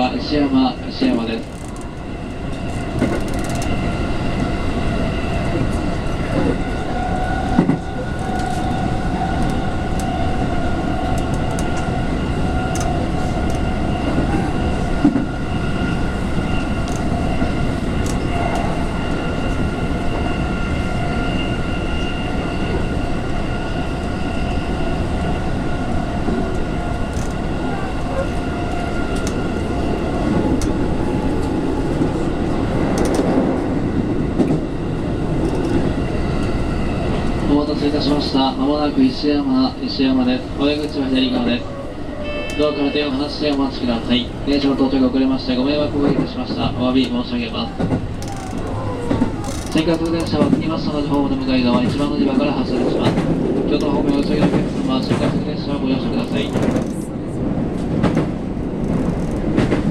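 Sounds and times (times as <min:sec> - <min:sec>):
wheels rumbling on rail: 0:00.0 - 0:59.9
train motor whine: 0:01.0 - 0:33.4, 0:45.5 - 0:52.1.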